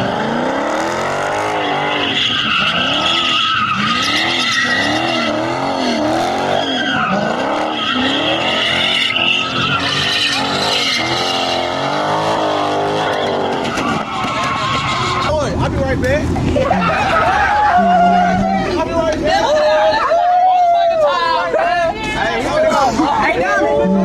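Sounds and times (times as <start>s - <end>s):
car engine revving: 0.0s - 19.4s
tyres squealing: 1.4s - 15.5s, 16.5s - 20.1s.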